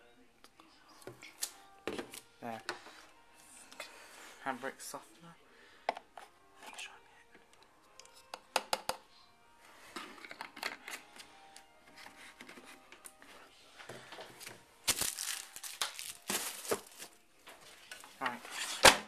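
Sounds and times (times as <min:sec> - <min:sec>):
rustling and crinkling: 0:11.9 - 0:18.9.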